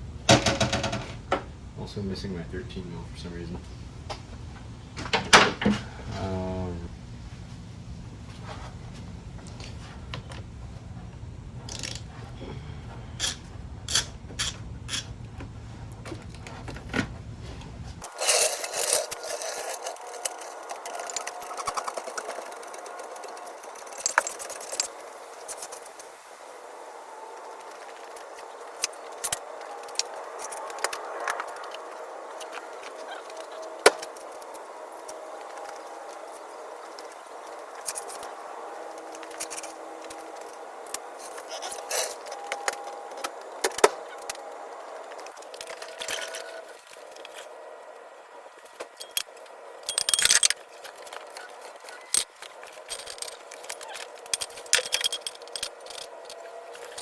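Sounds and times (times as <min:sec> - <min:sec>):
rattling scrape: 0:11.6 - 0:26.0, 0:37.8 - 0:44.4, 0:48.8 - 0:57.0
hand tools clinking on metal: 0:18.0 - 0:25.9, 0:48.7 - 0:57.0.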